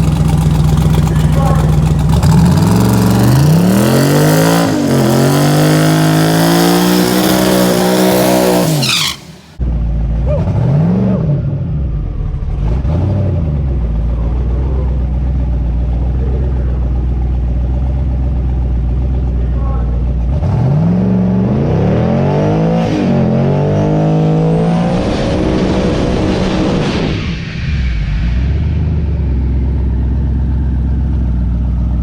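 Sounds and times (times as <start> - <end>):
engine throttle blips: 0.0 - 9.6
engine idling: 0.0 - 10.2, 13.7 - 20.3
racing engine at full throttle: 0.0 - 18.2, 20.3 - 30.9.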